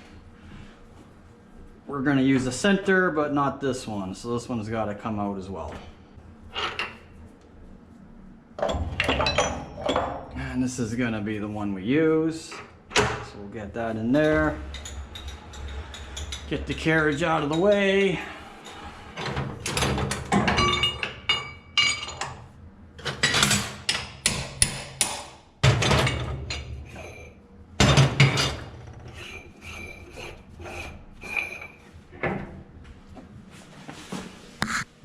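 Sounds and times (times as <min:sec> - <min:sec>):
metal knocks and clanks: 0:14.1 - 0:22.4, 0:27.8 - 0:29.8.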